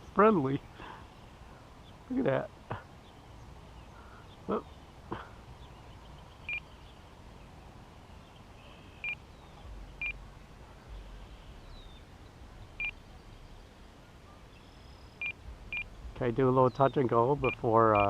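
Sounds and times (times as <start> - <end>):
short electronic beeps: 9.0 - 9.2, 15.2 - 15.9, 17.4 - 18.0.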